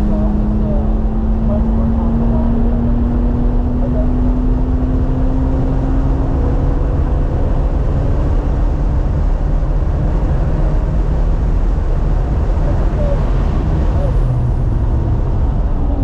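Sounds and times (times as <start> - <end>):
car engine accelerating: 0.0 - 16.0
road and wind rumble: 0.0 - 16.0.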